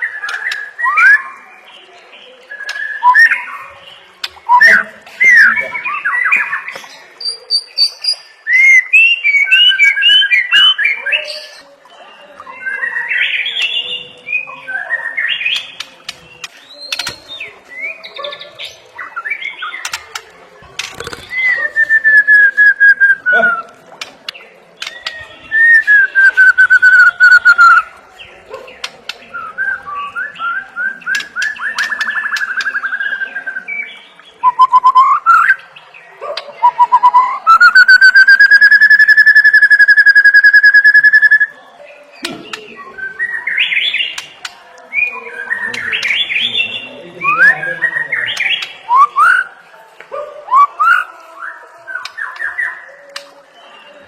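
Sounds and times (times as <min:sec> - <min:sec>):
bird singing whistles and trills: 0:00.0 - 0:01.4, 0:02.2 - 0:11.7, 0:24.8 - 0:27.9, 0:29.1 - 0:35.6, 0:36.6 - 0:41.6.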